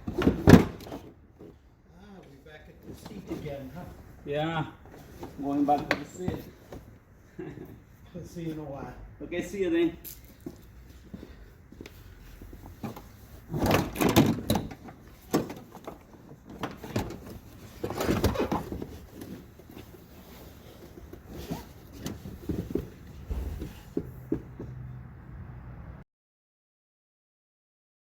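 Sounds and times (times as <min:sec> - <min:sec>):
clattering and knocking: 0:00.0 - 0:01.6, 0:12.6 - 0:24.8.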